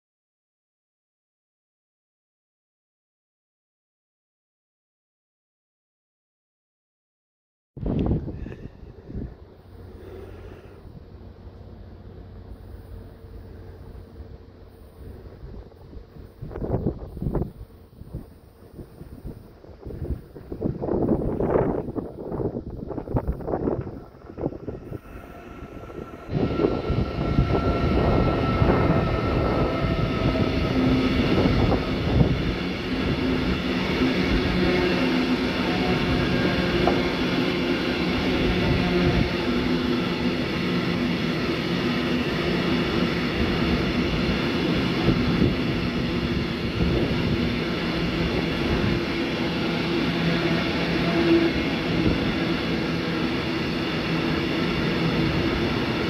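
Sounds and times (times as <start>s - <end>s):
freight train wheels rumbling on rail: 7.8s - 56.0s.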